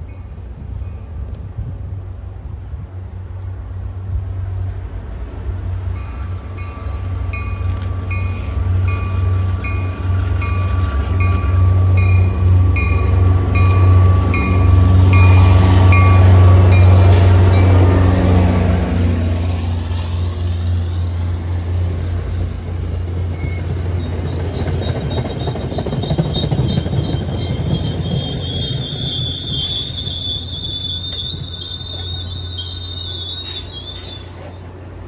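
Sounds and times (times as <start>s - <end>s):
diesel engine and wheels rumbling: 0.0s - 35.0s
locomotive bell ringing: 6.0s - 18.0s.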